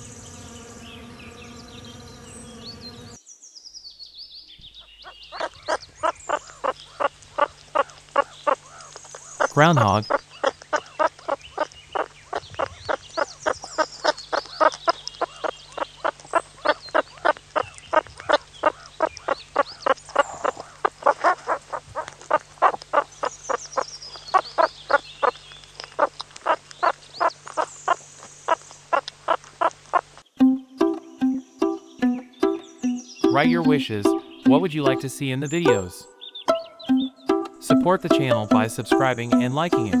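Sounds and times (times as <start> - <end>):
marmot calling: 5.3 - 25.3, 30.8 - 40.0.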